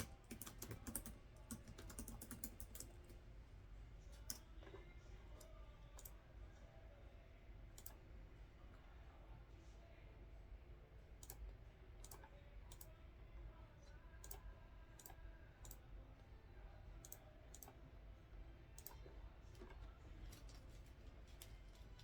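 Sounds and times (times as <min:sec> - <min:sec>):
computer mouse clicks: 0:00.0 - 0:03.2, 0:04.2 - 0:04.8, 0:05.4 - 0:06.2, 0:07.8 - 0:08.0, 0:11.2 - 0:12.9, 0:14.2 - 0:14.4, 0:15.0 - 0:15.8, 0:17.0 - 0:17.8, 0:18.8 - 0:22.0
low steady hum: 0:00.0 - 0:22.0.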